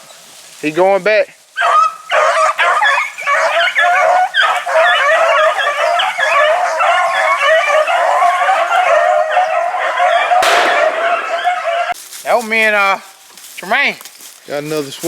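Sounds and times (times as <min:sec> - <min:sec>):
pack of dogs baying: 0:01.5 - 0:12.0.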